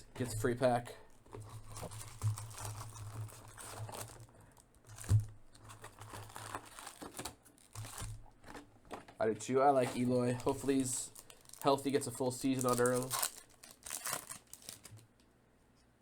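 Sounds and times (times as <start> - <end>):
wrappers crinkling and tearing: 1.3 - 8.6, 9.7 - 15.1
cards rustling and clicking: 4.9 - 15.0.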